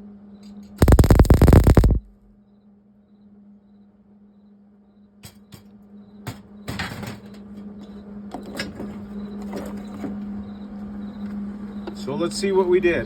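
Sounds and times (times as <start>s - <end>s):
short burst of noise: 0.8s - 2.2s
steady low hum: 0.8s - 2.3s.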